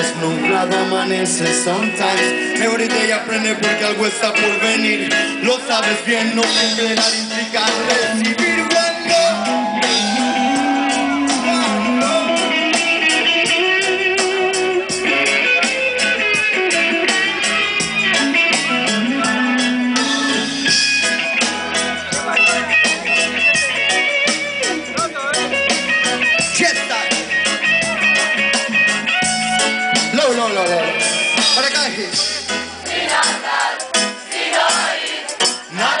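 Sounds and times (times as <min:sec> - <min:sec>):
electric guitar playing: 0:00.0 - 0:36.0
drum beat: 0:06.3 - 0:36.0.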